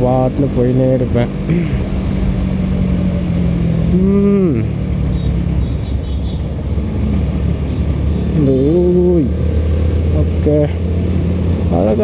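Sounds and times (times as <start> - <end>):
motorcycle engine hum: 0.0 - 12.0
wind rumble on microphone: 1.0 - 7.5
short rising and falling tone: 1.4 - 5.9.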